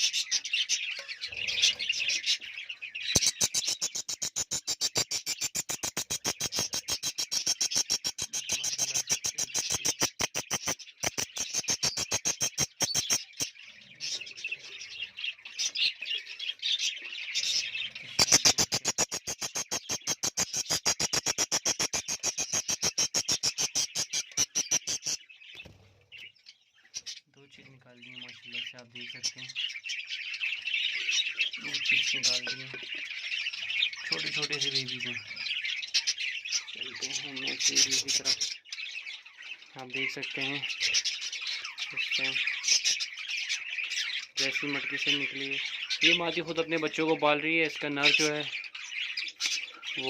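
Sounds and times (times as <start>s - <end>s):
budgerigars chirping and chattering: 0.0s - 50.0s.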